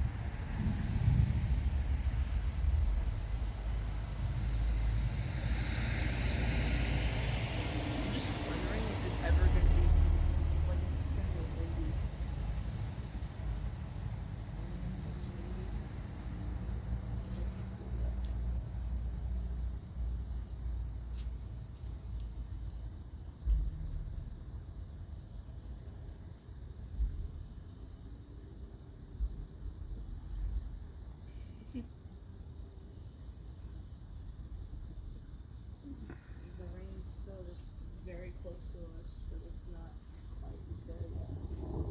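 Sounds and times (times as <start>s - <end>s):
low rumble: 0.0s - 15.8s, 23.4s - 24.5s, 36.6s - 41.9s
crickets chirping: 0.0s - 41.9s.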